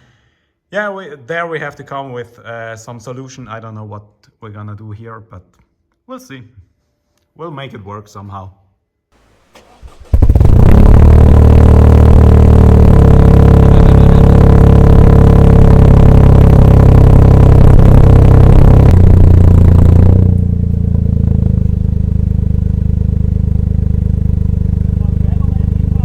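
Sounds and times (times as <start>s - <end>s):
car engine running loud: 9.6s - 26.0s.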